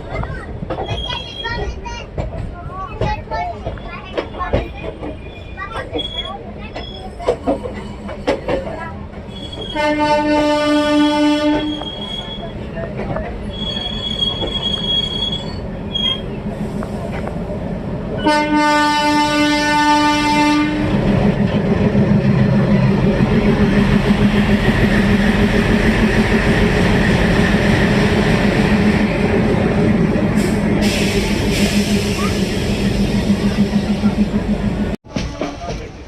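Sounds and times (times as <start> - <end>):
train running on rails: 0.0 - 36.0
high wheel squeal: 5.2 - 7.2, 9.3 - 9.8, 11.6 - 12.6, 13.4 - 16.4
train horn: 9.7 - 11.9, 18.2 - 21.0.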